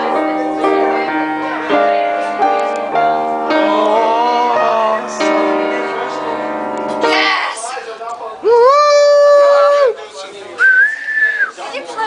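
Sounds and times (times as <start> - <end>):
piano chords: 0.0 - 8.0
person singing: 3.4 - 6.4.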